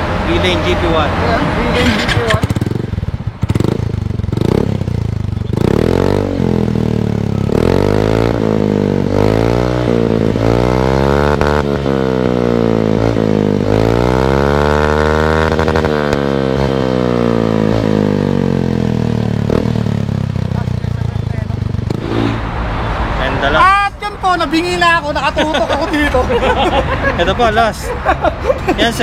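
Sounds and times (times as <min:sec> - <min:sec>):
scooter engine revving: 0:00.4 - 0:22.7.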